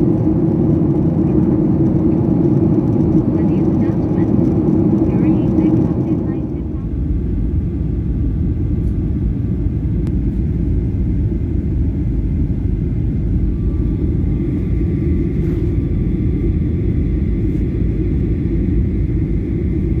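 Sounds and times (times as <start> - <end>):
airliner cabin engine rumble: 0.0 - 20.0
faint high whine: 12.8 - 19.4.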